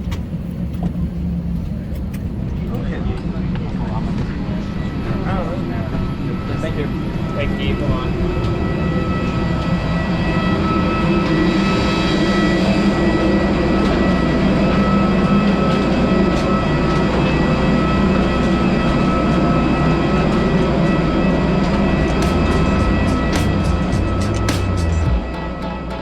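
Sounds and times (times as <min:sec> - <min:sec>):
aircraft engine rumble: 0:00.0 - 0:26.0
engine whine at idle: 0:06.5 - 0:25.4.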